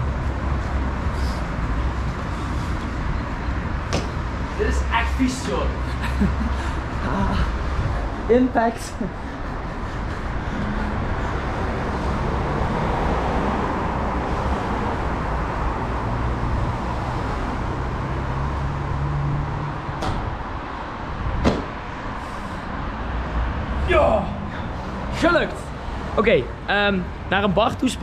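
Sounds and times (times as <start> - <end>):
outdoor street background noise: 0.0 - 28.0
shoes landing on paving: 3.9 - 4.2.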